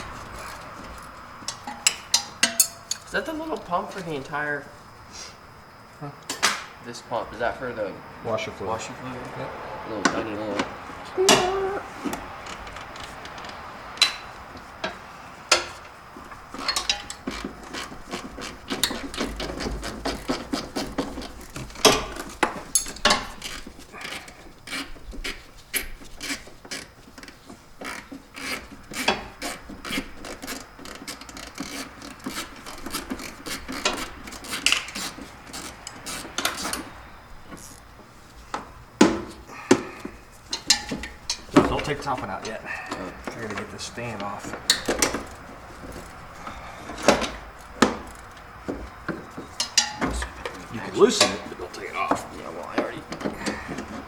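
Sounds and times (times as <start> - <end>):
metal clanks: 0.0 - 4.2, 11.3 - 26.6, 38.5 - 54.0
hand tools clicking and scraping: 0.0 - 4.5, 10.0 - 54.0.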